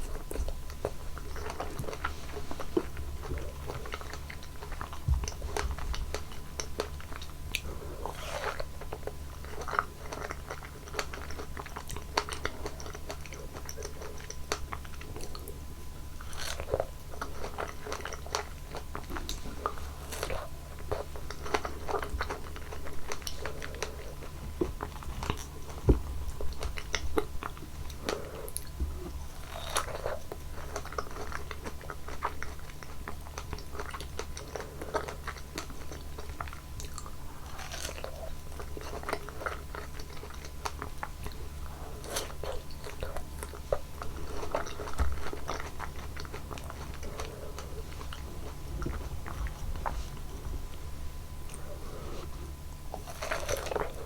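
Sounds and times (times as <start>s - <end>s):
biting and chewing fruit: 0.0s - 54.0s
low hum: 41.2s - 54.0s.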